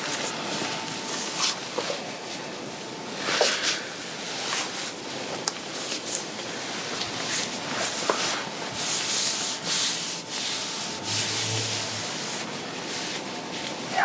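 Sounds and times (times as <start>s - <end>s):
fabric rubbing against fabric: 9.7s - 13.0s.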